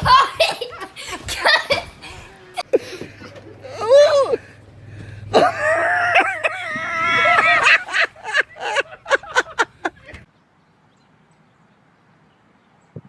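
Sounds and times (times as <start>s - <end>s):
high-pitched screams and yelps: 3.6s - 4.4s, 5.4s - 8.4s.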